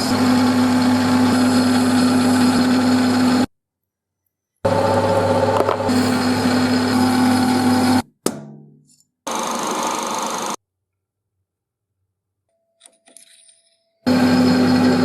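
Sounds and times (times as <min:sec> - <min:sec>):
power tool running in bursts: 0:00.0 - 0:03.5, 0:04.7 - 0:08.0, 0:09.3 - 0:10.6, 0:14.1 - 0:15.0.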